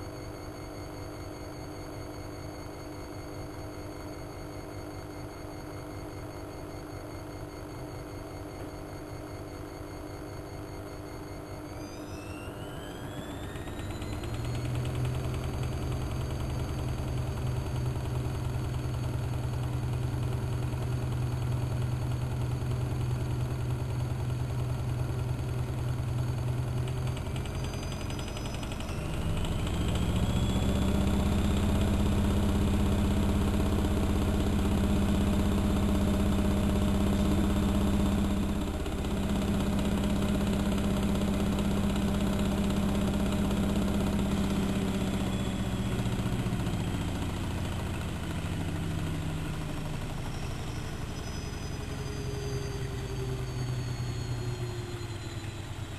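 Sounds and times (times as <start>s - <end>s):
washing machine motor and drum: 12.0s - 55.6s.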